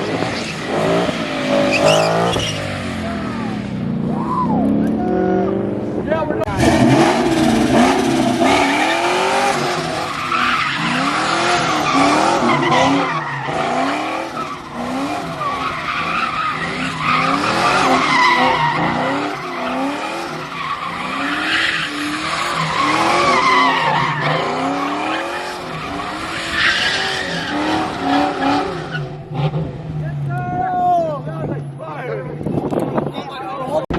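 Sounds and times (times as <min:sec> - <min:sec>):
car engine revving hard: 0:00.0 - 0:30.0
tyres screeching: 0:01.5 - 0:03.3, 0:06.6 - 0:29.1.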